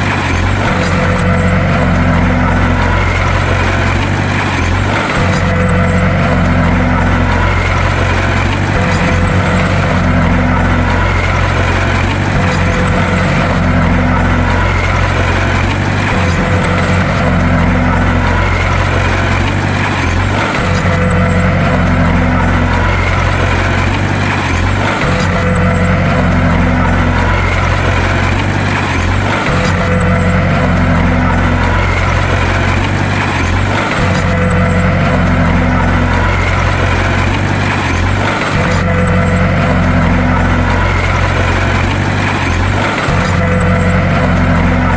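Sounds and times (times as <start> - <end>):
bulldozer diesel engine droning: 0.0 - 44.9.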